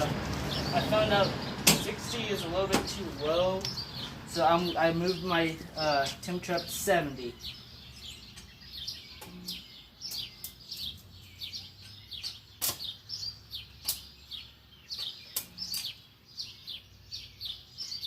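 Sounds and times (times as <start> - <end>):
small birds chirping: 0.0 - 18.0
sharp clicks: 12.2 - 12.9, 13.8 - 14.1, 15.0 - 16.0.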